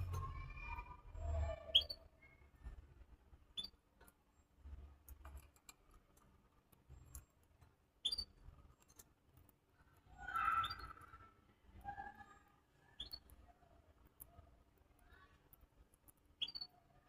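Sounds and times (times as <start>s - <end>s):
cage birds chirping: 0.0s - 17.0s.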